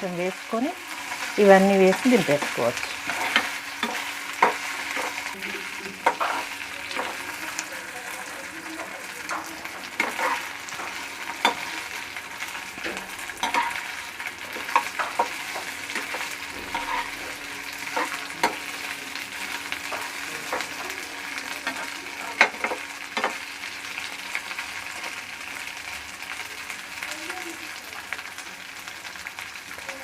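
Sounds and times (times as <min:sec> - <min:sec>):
chicken sizzling in hot oil: 0:00.0 - 0:30.0
spatula scraping pan: 0:00.8 - 0:23.4.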